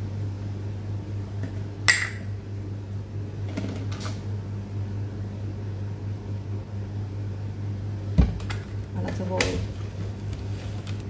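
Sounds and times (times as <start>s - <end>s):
steady low hum: 0.0s - 11.0s
knocks on kitchen counter: 8.2s - 8.6s.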